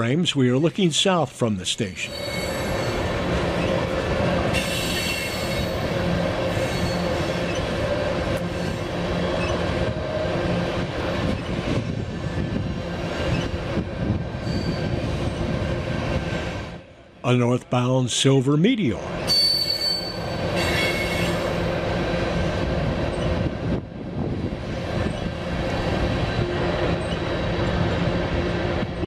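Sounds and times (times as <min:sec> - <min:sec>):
train wheels rumbling and clattering: 0:01.9 - 0:16.8, 0:19.0 - 0:29.0
faint wheel squeal: 0:02.0 - 0:03.7, 0:14.4 - 0:14.9, 0:19.3 - 0:21.4.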